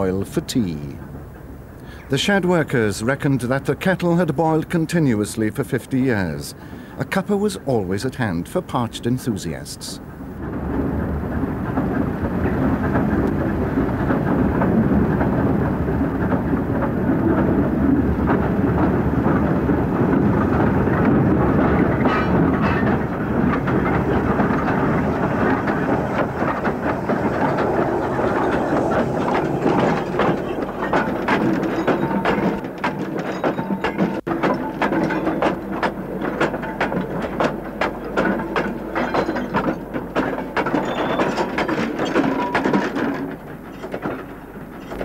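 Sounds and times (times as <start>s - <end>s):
train wagons rumbling and rattling: 0.0s - 45.0s
clanks and clicks: 10.4s - 45.0s.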